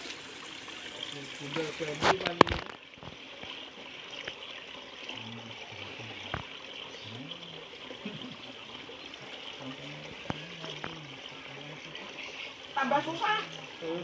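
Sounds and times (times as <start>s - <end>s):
water trickling: 0.0s - 14.0s
faint voices: 5.0s - 14.0s.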